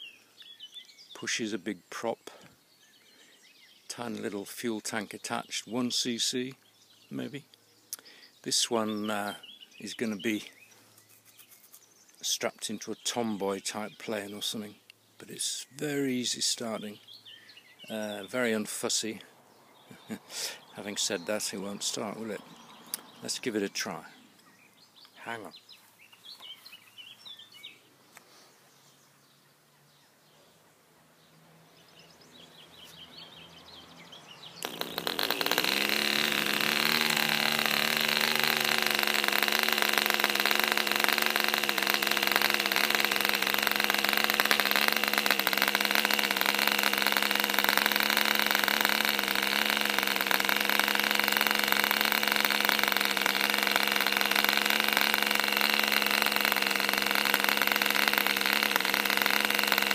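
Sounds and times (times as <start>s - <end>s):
model aircraft engine running: 34.6s - 59.9s.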